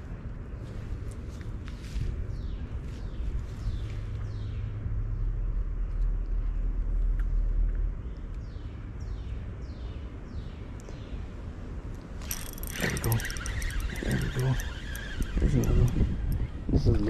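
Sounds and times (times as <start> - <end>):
bird whistling downward notes: 12.3 - 16.6.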